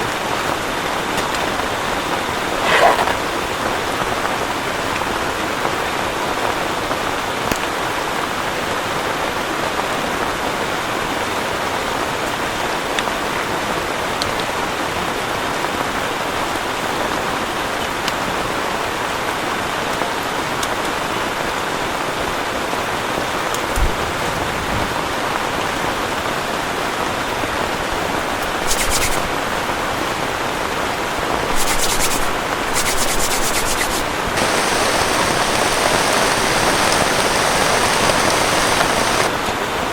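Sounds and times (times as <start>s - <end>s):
heavy rain: 0.0s - 39.9s
rustling bursts: 28.4s - 29.3s, 31.4s - 39.3s.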